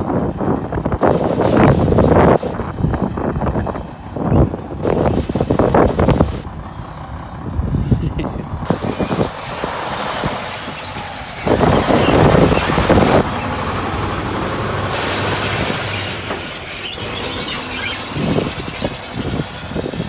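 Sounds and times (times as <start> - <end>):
truck engine running: 0.0 - 20.0
loud burst of noise: 8.7 - 20.0.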